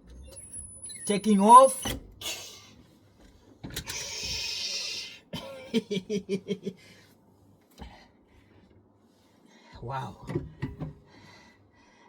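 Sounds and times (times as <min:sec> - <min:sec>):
man's chuckle-like pulses: 0:05.4 - 0:06.8.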